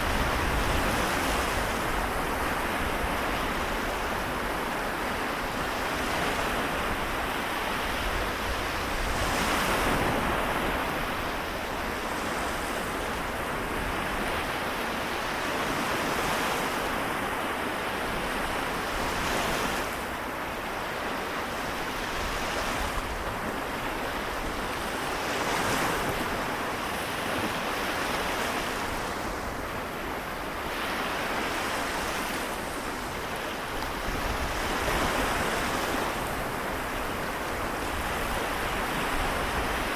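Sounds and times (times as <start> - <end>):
small waves washing onto shore: 0.0 - 39.9.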